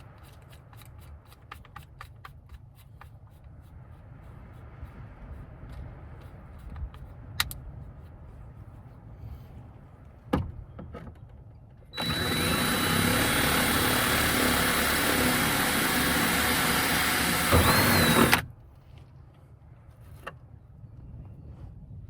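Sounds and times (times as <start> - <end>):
electric drill boring through panel: 12.0 - 18.4.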